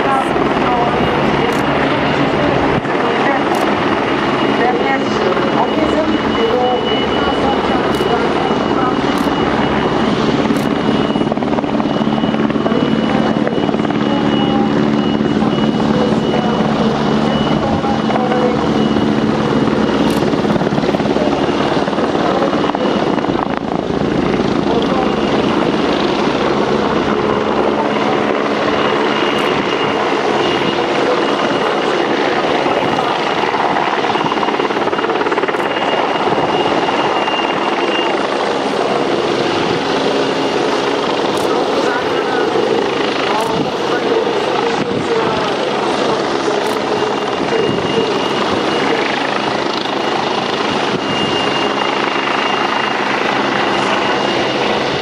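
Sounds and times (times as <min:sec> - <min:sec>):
helicopter rotor and turbine: 0:00.0 - 0:55.0.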